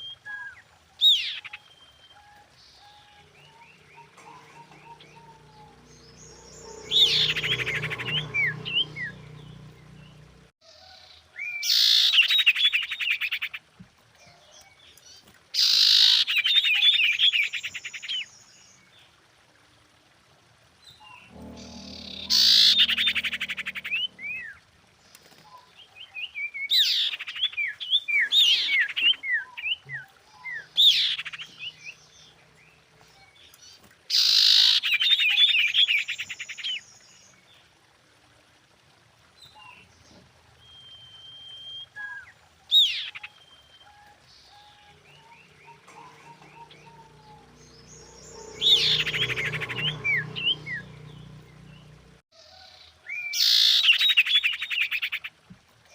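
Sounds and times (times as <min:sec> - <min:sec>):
bird chirping in sweeping bursts: 0:03.2 - 0:10.5, 0:21.2 - 0:24.6, 0:45.0 - 0:52.0
low hum: 0:21.2 - 0:24.6.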